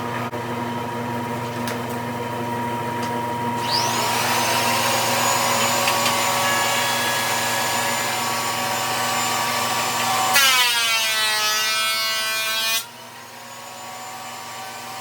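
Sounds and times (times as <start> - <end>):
power saw motor whine: 3.5 - 10.6
saw blade cutting wood: 3.6 - 12.9.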